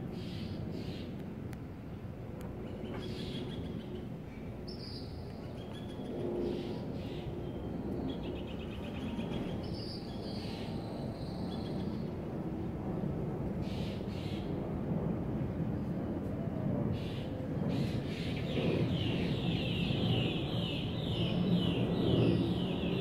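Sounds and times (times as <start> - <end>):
steady low outdoor rush: 0.0 - 23.0
birds whistled calls: 17.0 - 23.0.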